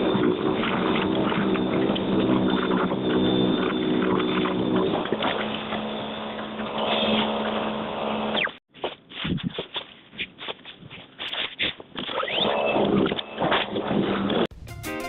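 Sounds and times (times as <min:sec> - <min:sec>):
snowblower motor humming: 0:00.0 - 0:08.4.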